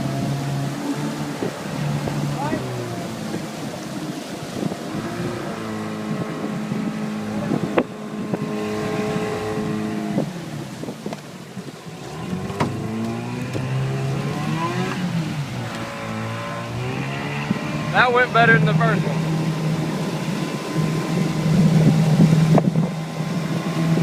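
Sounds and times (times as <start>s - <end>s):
outboard motor running: 0.0s - 24.0s
wind on microphone: 0.0s - 24.0s.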